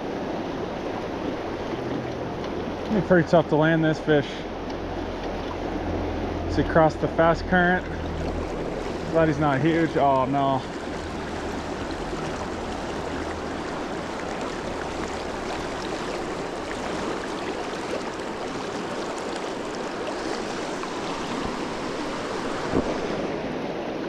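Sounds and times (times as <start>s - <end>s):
river current rushing: 0.0s - 24.0s.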